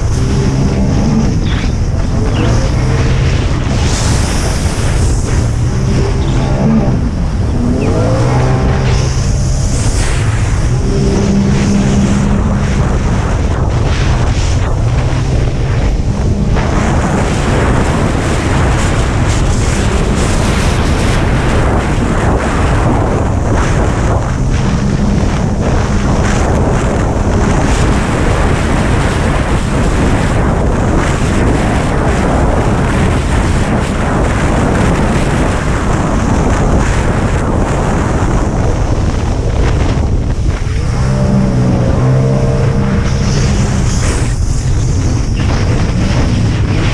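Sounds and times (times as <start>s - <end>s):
jet ski engine running: 0.0s - 46.9s
wind noise on microphone: 0.0s - 46.9s
water spray: 2.2s - 13.2s.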